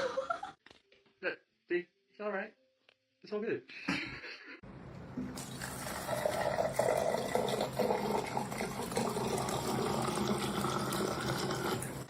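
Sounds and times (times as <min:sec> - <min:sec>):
running water: 0:05.2 - 0:12.0.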